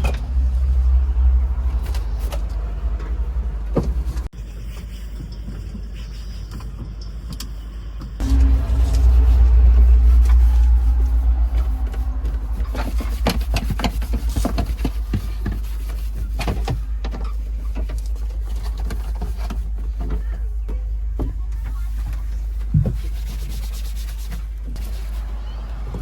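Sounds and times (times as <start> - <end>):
diesel engine low rumble: 0.0 - 4.3, 8.2 - 23.0, 24.4 - 26.0.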